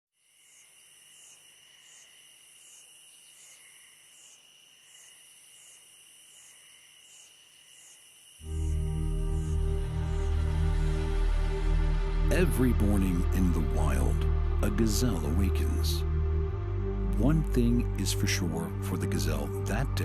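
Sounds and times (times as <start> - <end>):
insects chirping: 0.2 - 11.6
music: 8.4 - 20.0.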